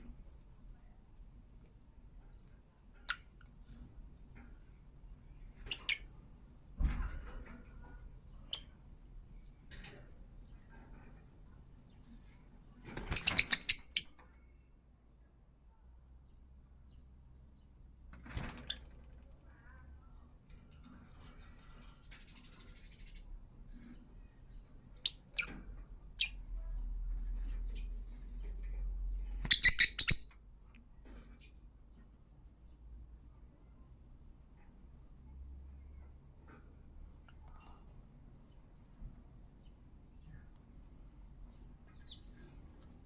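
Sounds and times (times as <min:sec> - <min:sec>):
parrot chirping: 0:13.1 - 0:14.2, 0:29.4 - 0:30.3.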